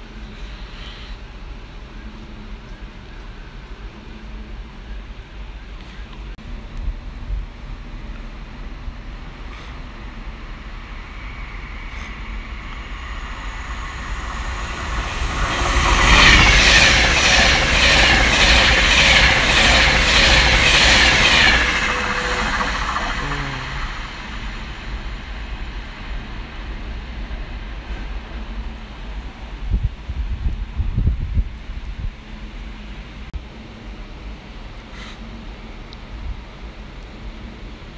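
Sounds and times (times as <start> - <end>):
train rushing past: 7.0 - 31.3
wheels clattering on rails: 10.7 - 29.6.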